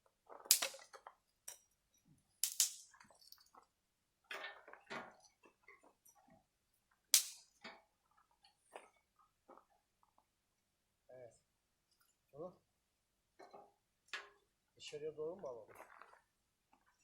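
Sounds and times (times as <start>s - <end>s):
wood cracking: 0.4s - 1.0s, 2.4s - 3.0s, 7.2s - 7.4s.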